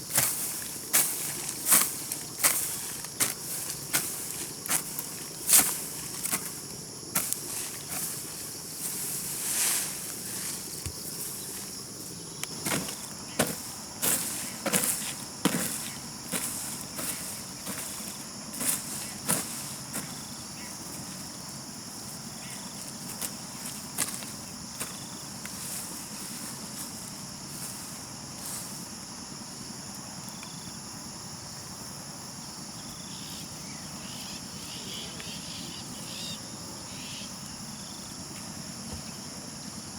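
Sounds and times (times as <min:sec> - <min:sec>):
high-pitched insect chorus: 0:00.0 - 0:39.9
knocks and scrapes: 0:12.6 - 0:20.2.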